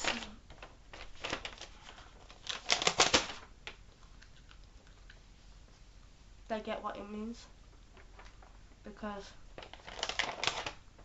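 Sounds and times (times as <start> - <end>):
paper crinkling: 0.0 - 3.8, 9.6 - 10.8.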